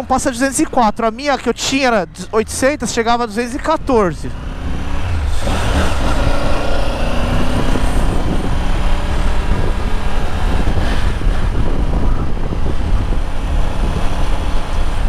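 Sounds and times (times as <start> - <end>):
motorcycle engine accelerating: 3.8 - 15.0
wind rush on microphone: 4.4 - 15.0.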